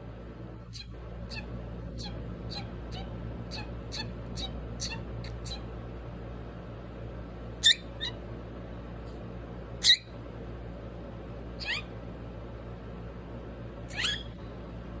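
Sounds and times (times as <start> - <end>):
parrot high-pitched calls: 0.7 - 5.7, 7.6 - 8.2, 9.8 - 10.1, 11.6 - 11.9, 13.9 - 14.4.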